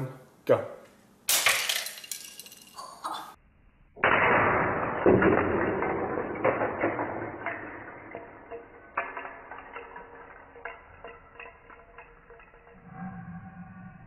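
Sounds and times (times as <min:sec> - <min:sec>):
crash of plastic parts: 0:01.3 - 0:03.0, 0:04.0 - 0:12.7
plastic bricks clattering: 0:01.3 - 0:03.0, 0:04.1 - 0:12.7.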